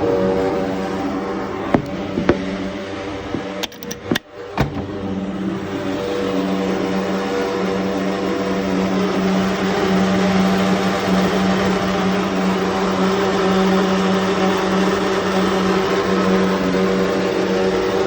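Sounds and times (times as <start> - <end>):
gas boiler humming: 0.0 - 5.7.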